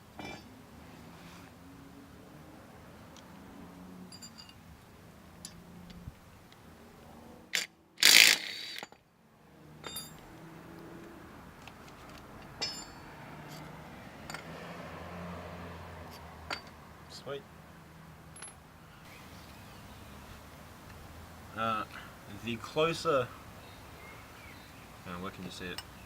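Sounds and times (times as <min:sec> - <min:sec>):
spanners clinking on metal: 0:04.1 - 0:04.6, 0:09.8 - 0:10.3, 0:12.4 - 0:13.7, 0:16.5 - 0:16.7.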